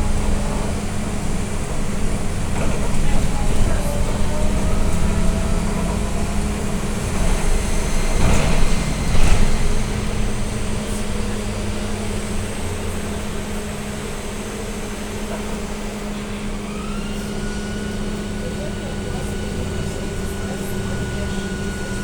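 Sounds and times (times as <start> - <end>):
road noise: 0.0 - 22.0
trolleybus electrical hum: 0.0 - 22.0.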